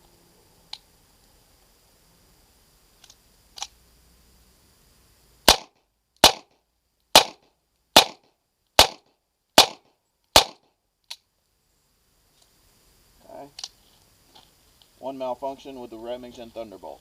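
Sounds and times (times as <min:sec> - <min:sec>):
pistol clicks: 0:03.0 - 0:03.7, 0:05.5 - 0:06.5
pistol shots: 0:05.5 - 0:06.5, 0:07.1 - 0:07.4, 0:08.0 - 0:08.2, 0:08.8 - 0:10.6.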